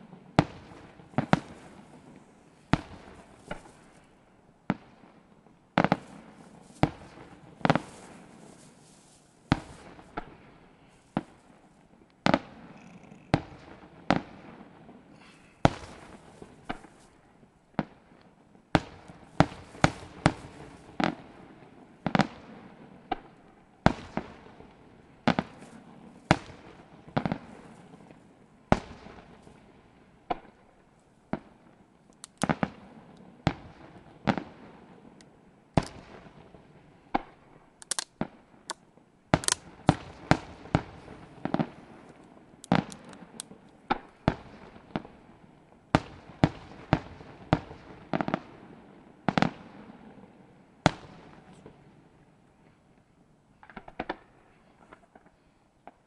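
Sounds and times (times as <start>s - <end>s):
firework shells bursting: 5.8s - 10.2s, 38.6s - 44.1s.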